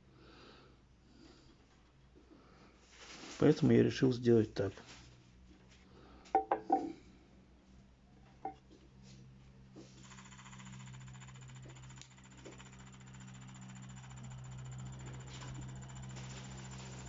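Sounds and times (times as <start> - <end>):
small motor buzzing: 10.0 - 17.0.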